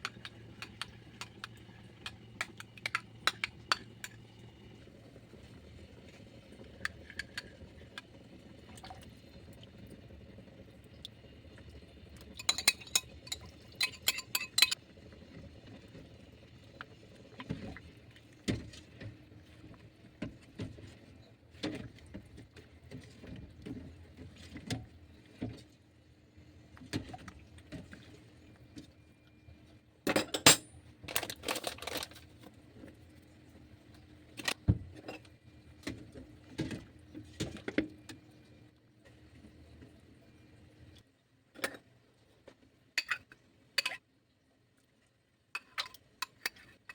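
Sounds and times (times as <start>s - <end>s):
utensils and cookware clattering: 12.3s - 14.8s.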